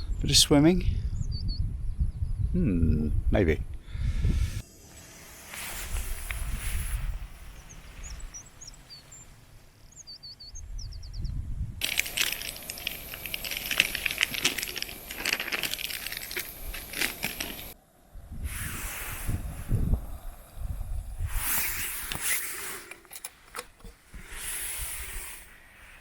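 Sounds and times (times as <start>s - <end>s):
small bird chirping: 1.0s - 2.6s, 6.3s - 14.4s
dense crackling rustling noise: 4.4s - 10.0s, 11.8s - 17.8s.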